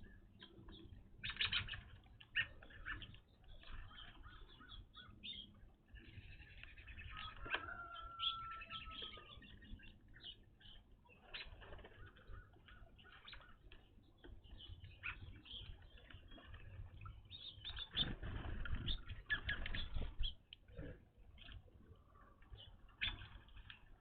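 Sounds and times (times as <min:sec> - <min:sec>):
birds chirping: 0:00.0 - 0:24.0
wings fluttering: 0:11.2 - 0:13.8, 0:17.6 - 0:20.4.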